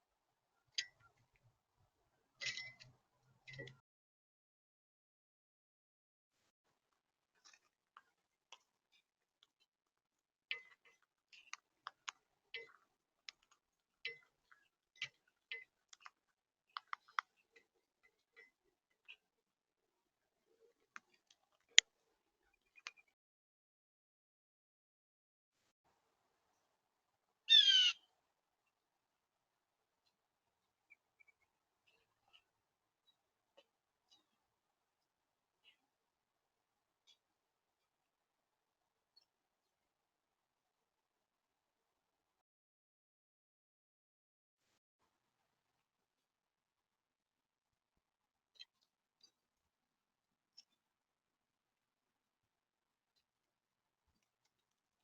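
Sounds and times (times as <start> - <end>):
bird chirp: 27.5 - 28.1, 30.8 - 33.2.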